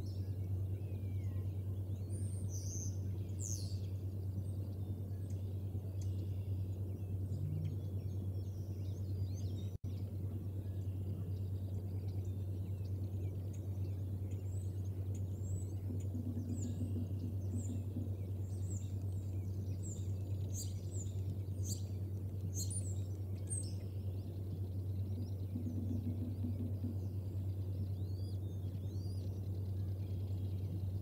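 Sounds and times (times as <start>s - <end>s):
small birds chirping: 0.0s - 31.0s
microphone hum: 5.6s - 14.3s.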